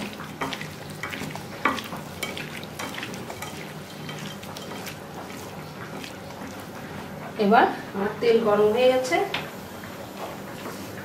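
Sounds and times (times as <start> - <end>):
wet squelches of prawns in bowl: 0.0 - 6.8.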